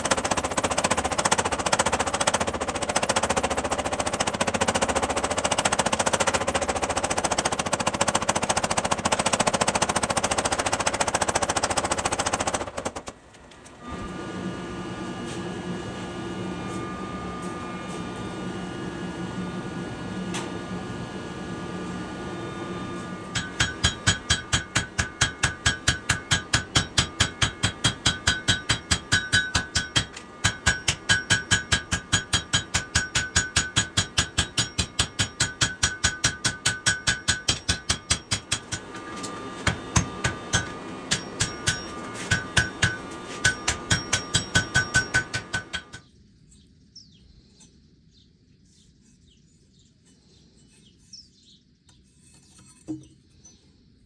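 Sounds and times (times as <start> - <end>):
steady hum: 0.0 - 46.0
hammer ringing on anvil: 23.3 - 38.9, 39.6 - 46.0.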